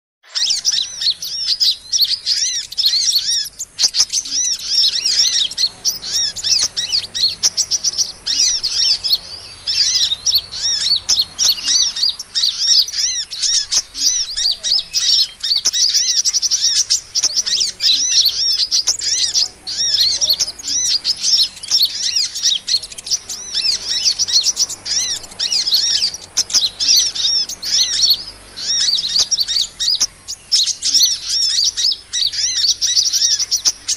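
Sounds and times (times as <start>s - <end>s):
small songbirds twittering: 0.2s - 33.9s.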